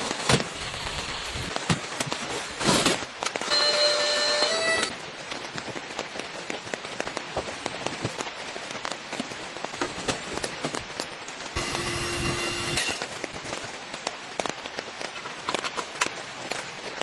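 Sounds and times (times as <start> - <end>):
rain pattering: 0.0 - 3.5, 4.9 - 11.6, 13.0 - 17.0
steady ringing tones: 3.4 - 4.9, 11.6 - 13.0.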